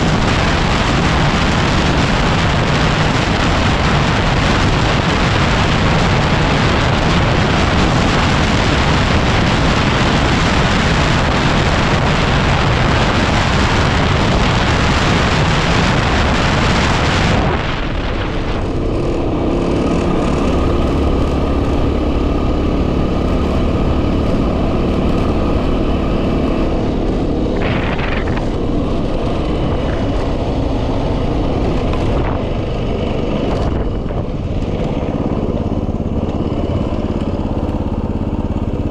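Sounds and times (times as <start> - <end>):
motorcycle engine running: 0.0 - 38.9
wind buffeting microphone: 0.0 - 38.9.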